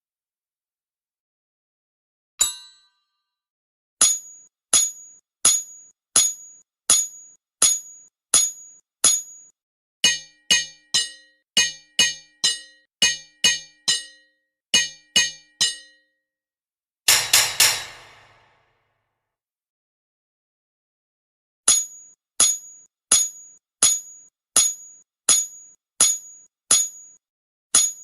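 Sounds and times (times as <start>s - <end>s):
hammer striking ringing metal: 10.0s - 16.0s, 17.1s - 18.7s.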